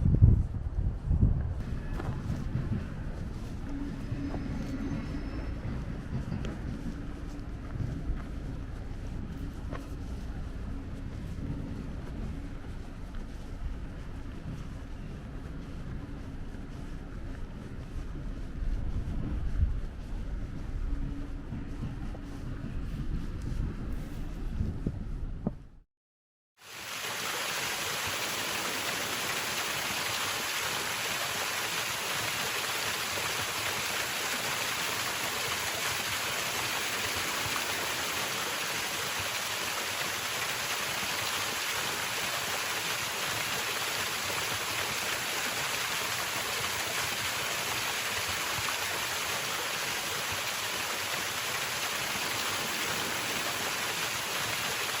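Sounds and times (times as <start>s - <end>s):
stream rushing over rocks: 26.6s - 55.0s.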